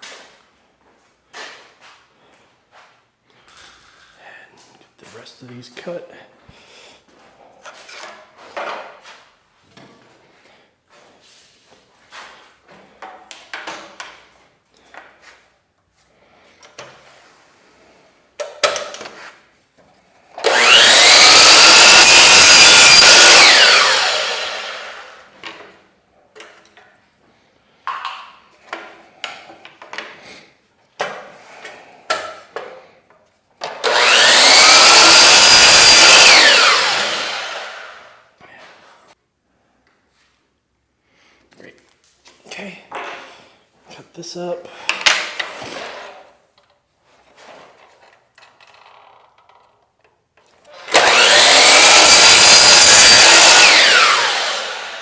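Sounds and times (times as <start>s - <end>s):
electric saw cutting wood: 20.4s - 25.4s, 33.6s - 38.2s, 50.7s - 55.0s.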